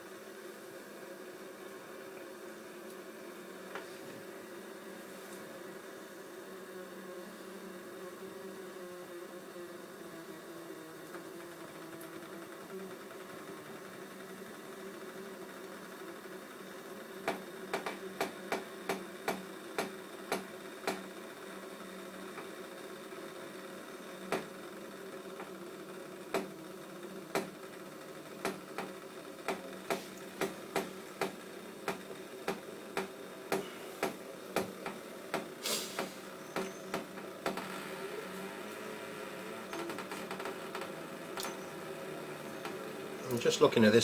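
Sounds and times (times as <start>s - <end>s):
steady hum: 0.0s - 44.0s
brief hiss: 35.6s - 36.4s.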